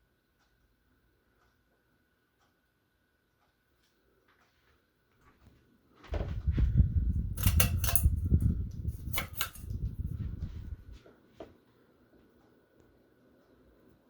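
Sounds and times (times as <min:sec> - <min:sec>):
sharp clicks and crackles: 0:07.4 - 0:10.0.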